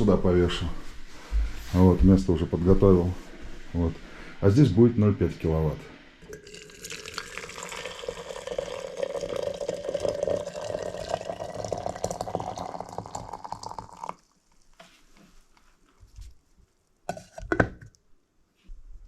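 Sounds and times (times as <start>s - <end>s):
tap water filling a container: 6.2s - 14.3s.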